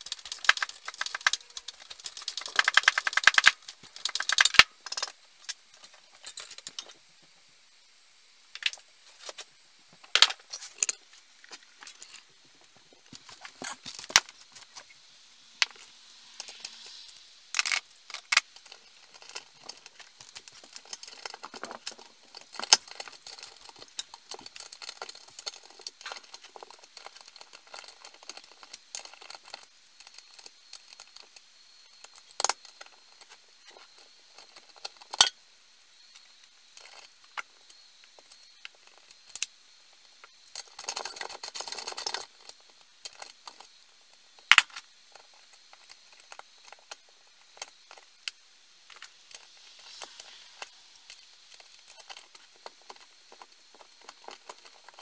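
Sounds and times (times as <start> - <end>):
metal parts clicking and clinking: 0.0 - 7.0, 15.6 - 35.4, 40.1 - 55.0.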